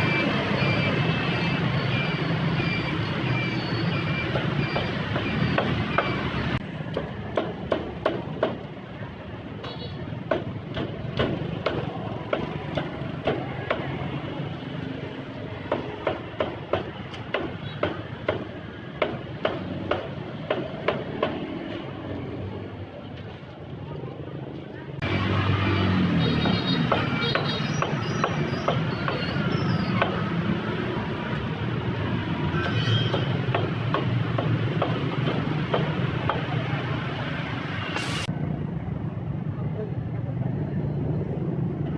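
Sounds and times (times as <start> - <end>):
street traffic rumble: 0.0 - 41.9.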